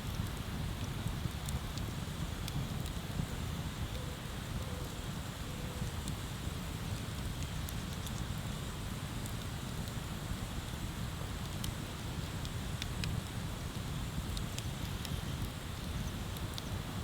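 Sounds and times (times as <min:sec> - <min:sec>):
wood fire crackling pops: 0:00.1 - 0:04.0, 0:09.2 - 0:17.0.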